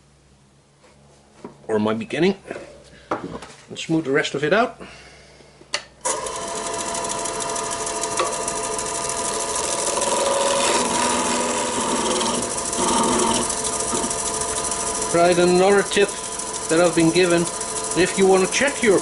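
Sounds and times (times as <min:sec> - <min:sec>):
gouge scraping spinning wood: 0:06.1 - 0:19.0
wood lathe running: 0:06.1 - 0:19.0.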